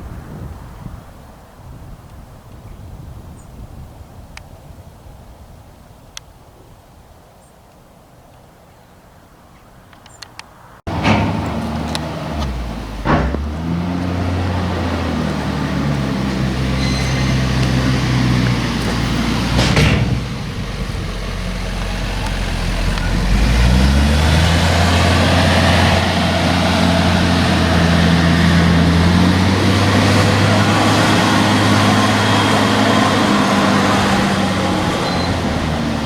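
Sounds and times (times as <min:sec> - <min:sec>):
sharp knock: 0:10.9 - 0:14.3, 0:19.4 - 0:20.6
loud thud: 0:10.9 - 0:21.3
heavy diesel engine under load: 0:10.9 - 0:36.0.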